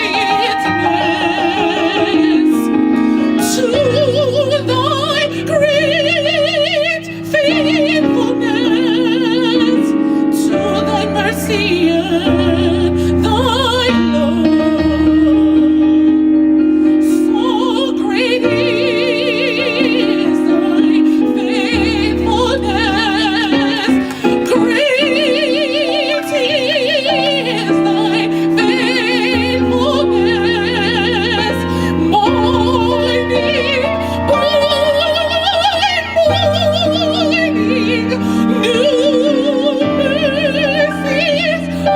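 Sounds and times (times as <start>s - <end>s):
gospel choir singing: 0.0s - 5.8s, 17.4s - 41.9s.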